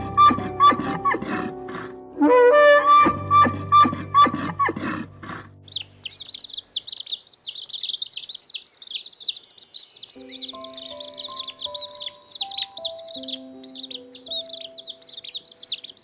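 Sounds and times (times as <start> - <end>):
music playing: 0.0 - 5.7, 10.1 - 15.8
chicks peeping: 4.2 - 16.0.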